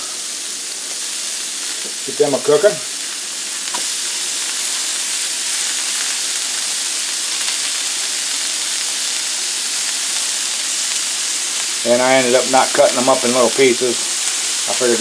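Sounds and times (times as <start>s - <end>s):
meat sizzling on a griddle: 0.0s - 15.0s.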